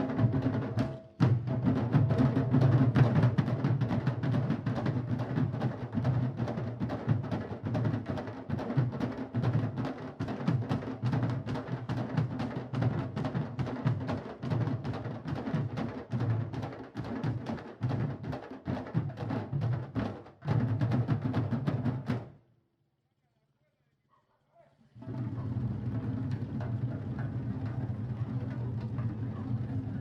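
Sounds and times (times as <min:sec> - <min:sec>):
drum ensemble playing: 0:00.0 - 0:22.3.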